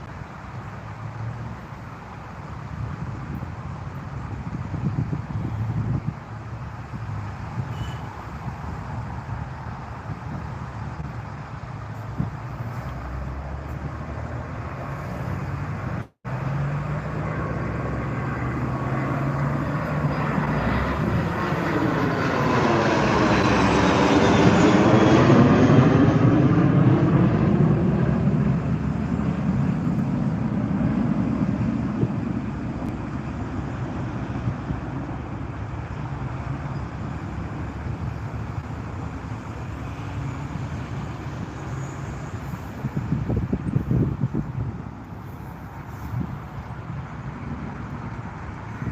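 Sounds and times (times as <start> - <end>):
jet aircraft roar: 0.0 - 48.9.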